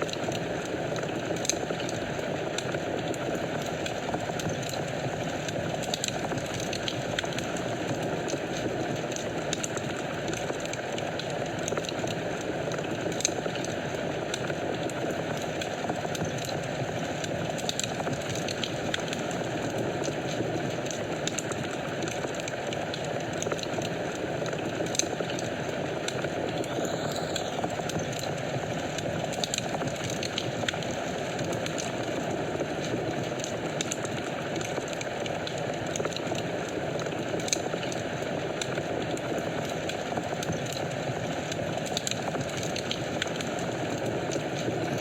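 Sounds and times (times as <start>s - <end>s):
fire crackling and popping: 0.0s - 45.0s
fire flames rushing: 0.0s - 45.0s.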